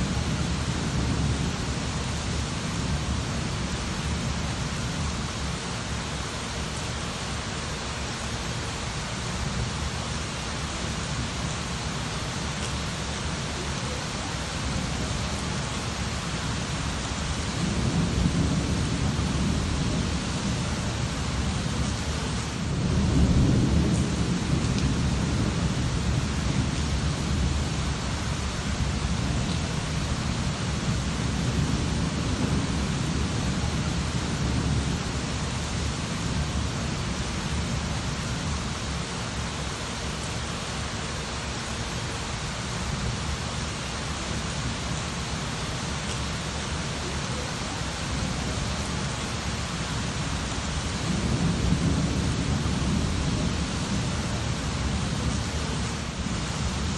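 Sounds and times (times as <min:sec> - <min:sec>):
steady rain falling: 0:00.0 - 0:56.9
thunder rolling: 0:22.6 - 0:27.8, 0:50.8 - 0:55.4.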